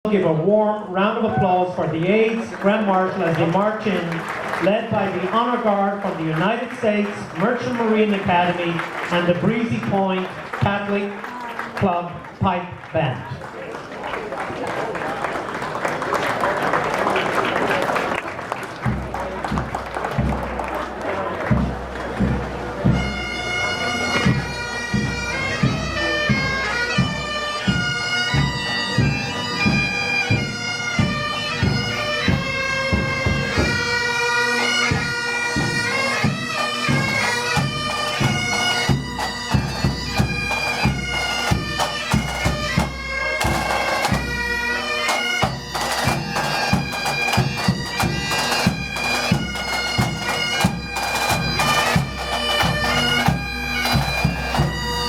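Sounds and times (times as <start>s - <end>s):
bagpipes melody and drone: 1.1s - 11.4s, 21.5s - 55.0s.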